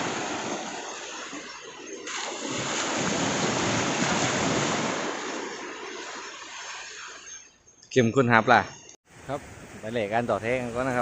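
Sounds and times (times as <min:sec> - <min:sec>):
sea surf rushing on shore: 0:00.0 - 0:07.3.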